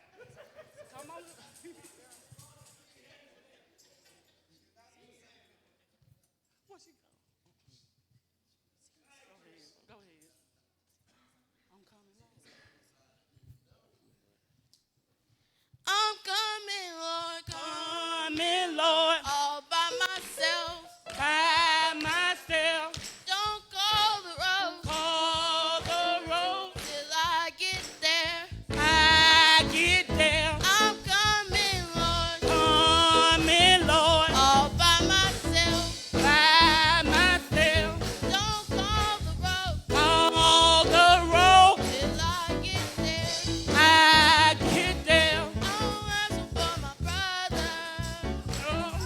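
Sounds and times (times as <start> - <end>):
person singing gospel: 15.9 - 49.0
band with bass and drums: 28.7 - 49.0.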